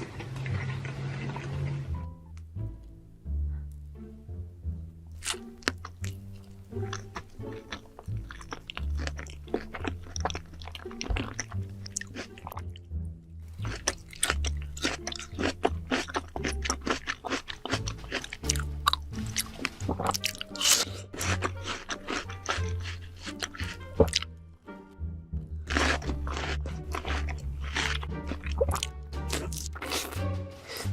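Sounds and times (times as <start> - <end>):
crunchy chewing of food: 5.1 - 12.8, 13.4 - 24.3, 25.6 - 30.9
music with low bass line: 23.8 - 30.9.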